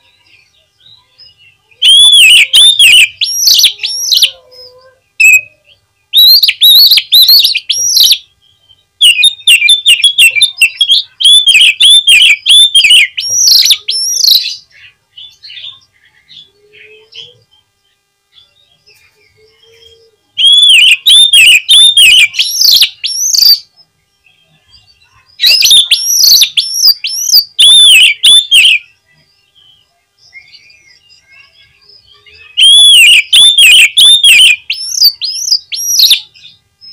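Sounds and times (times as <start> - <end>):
magpie-robin whistled song: 0.0 - 17.7, 19.3 - 23.8, 25.1 - 29.0, 30.2 - 36.9
faint bird calls: 0.0 - 36.9.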